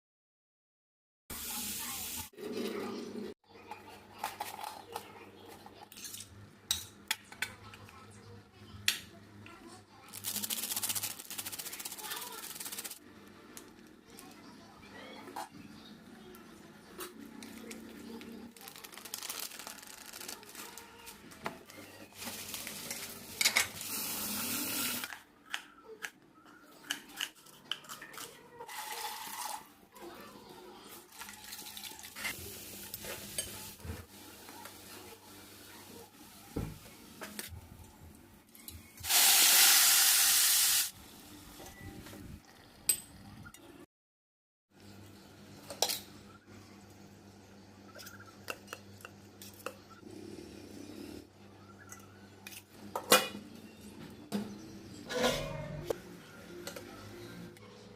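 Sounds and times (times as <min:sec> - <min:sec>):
cooking hiss: 0:01.3 - 0:02.3, 0:39.0 - 0:41.3
metal utensils scraping pans: 0:54.4 - 0:56.0.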